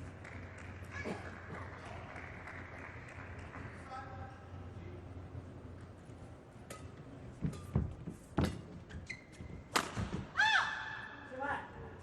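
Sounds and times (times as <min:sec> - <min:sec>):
shoes squeaking on court floor: 0:07.4 - 0:10.0
racket striking shuttlecock: 0:09.7 - 0:10.2.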